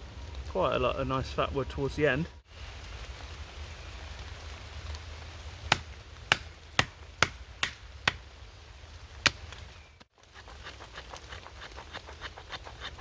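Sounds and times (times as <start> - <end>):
steady rain: 0.0 - 10.4
blade chopping wood: 5.7 - 8.3, 9.2 - 9.7.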